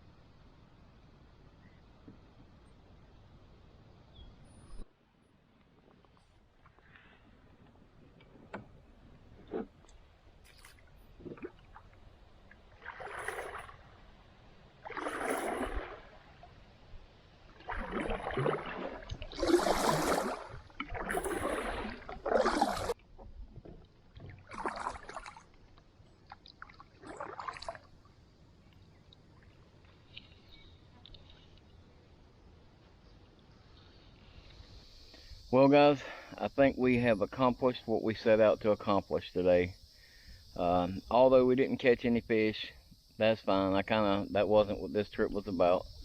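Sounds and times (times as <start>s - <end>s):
kayak paddle splashing: 8.4s - 16.7s, 17.4s - 28.1s.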